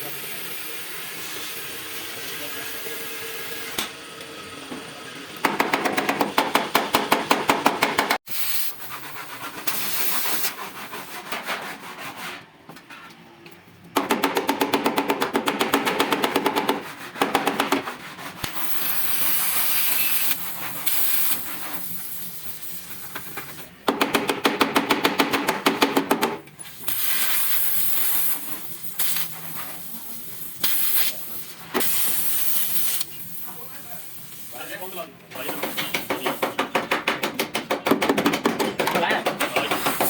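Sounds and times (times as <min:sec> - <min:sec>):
compressed air hissing: 0:08.2 - 0:10.7, 0:18.4 - 0:23.7, 0:26.6 - 0:36.7.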